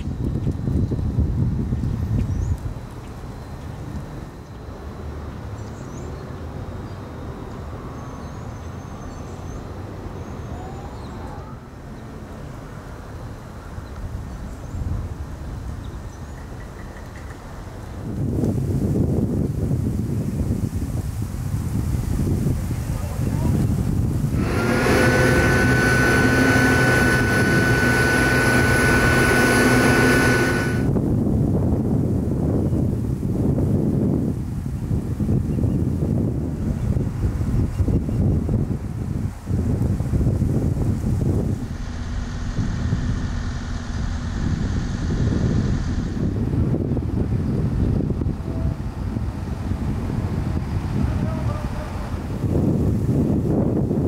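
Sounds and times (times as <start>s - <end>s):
faint bird chirps: 7.9s - 11.8s
steady low rumble: 23.8s - 31.9s, 40.2s - 50.0s
engine drone with high whine: 24.0s - 31.3s, 40.3s - 50.0s.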